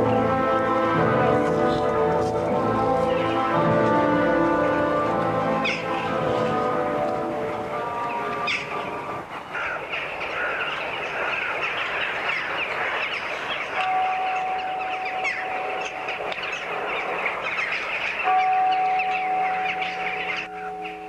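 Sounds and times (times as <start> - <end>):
steady held musical note: 0.0 - 9.3
birds chirping and calling: 0.0 - 21.0.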